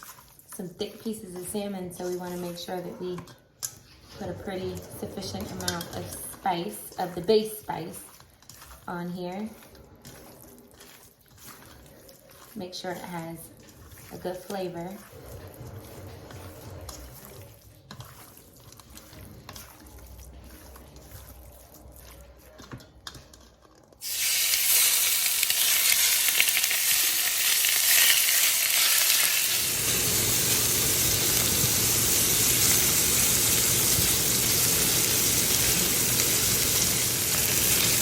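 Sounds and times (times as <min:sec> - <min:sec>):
fish sizzling in a frying pan: 0:24.0 - 0:38.0.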